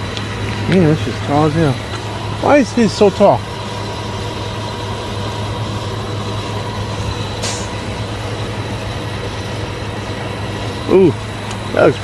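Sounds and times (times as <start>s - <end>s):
truck engine running: 0.0s - 12.0s
brief hiss: 7.4s - 7.8s.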